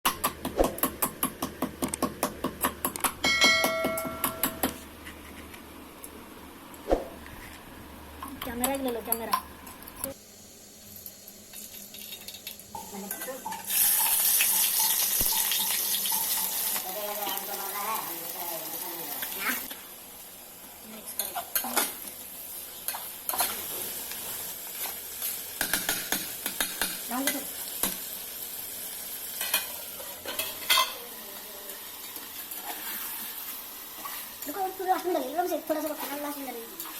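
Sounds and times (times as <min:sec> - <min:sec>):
chicken sizzling in a pan: 0:10.1 - 0:36.9.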